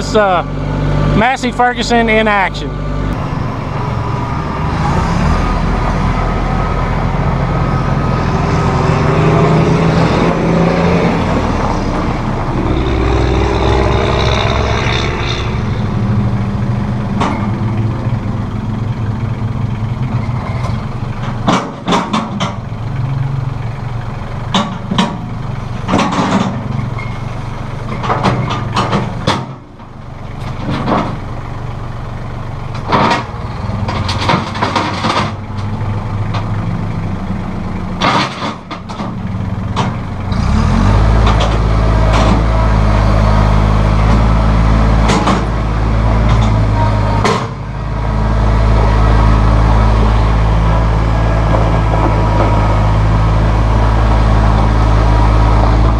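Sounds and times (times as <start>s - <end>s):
tractor diesel engine revving: 0.0s - 55.9s
sharp knocks and clanks: 16.9s - 18.2s, 20.0s - 22.7s, 24.4s - 31.3s, 32.7s - 36.6s, 38.0s - 40.1s, 41.2s - 42.6s, 45.0s - 47.7s.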